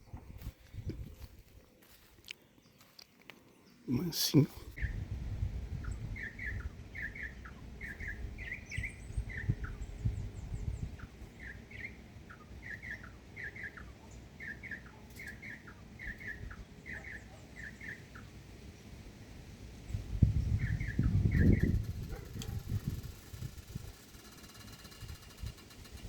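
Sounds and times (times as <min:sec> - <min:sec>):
low rumble: 0:04.8 - 0:11.2
bird chirping: 0:05.7 - 0:18.9, 0:19.9 - 0:25.9.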